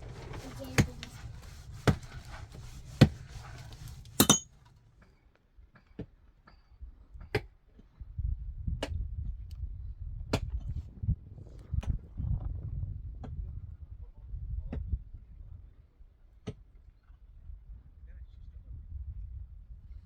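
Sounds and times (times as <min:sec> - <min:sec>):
low rumble: 0:00.0 - 0:04.8
sharp knocks and clinks: 0:04.0 - 0:04.6
metallic ring: 0:04.1 - 0:04.6.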